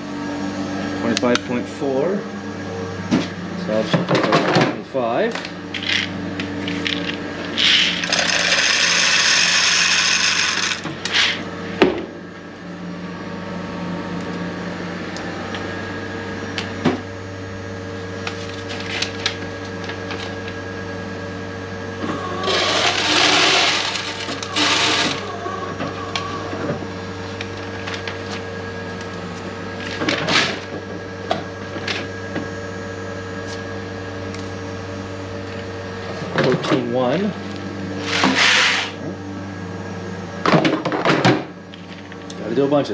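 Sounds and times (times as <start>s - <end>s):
steady machinery hum: 0.0s - 42.9s
loud whirring burst: 7.6s - 11.4s, 22.2s - 25.6s.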